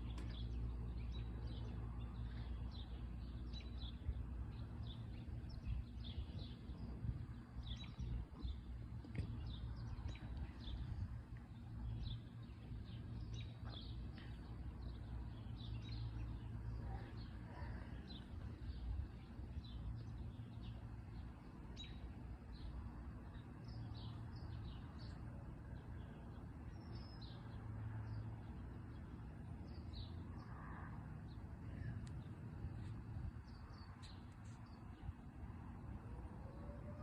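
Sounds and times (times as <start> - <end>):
steady low rumble: 0.0 - 27.7
small birds chirping: 0.0 - 35.3.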